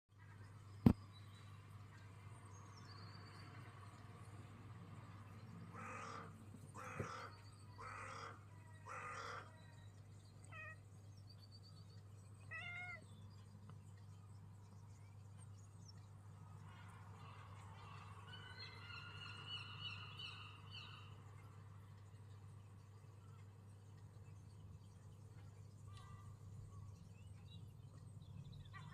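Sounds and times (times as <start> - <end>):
cat calling harshly: 12.5 - 13.0
cat meowing: 12.5 - 13.0.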